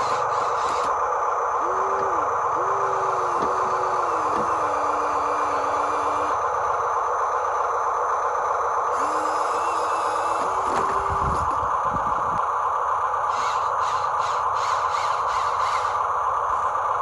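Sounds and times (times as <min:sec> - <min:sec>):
small electric motors whirring: 0:00.0 - 0:01.0, 0:01.6 - 0:06.4, 0:08.9 - 0:11.6, 0:13.3 - 0:16.7
whining motor tone: 0:00.0 - 0:06.6, 0:08.9 - 0:12.4, 0:13.3 - 0:16.8.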